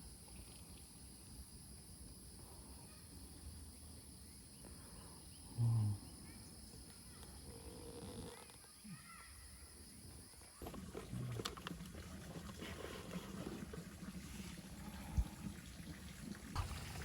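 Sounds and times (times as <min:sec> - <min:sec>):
insects droning: 0:00.0 - 0:11.8.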